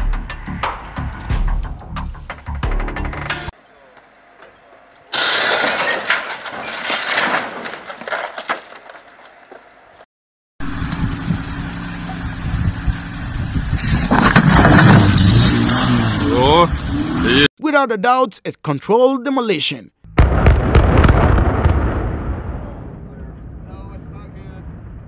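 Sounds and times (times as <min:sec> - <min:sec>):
car engine under load: 0:10.6 - 0:17.2.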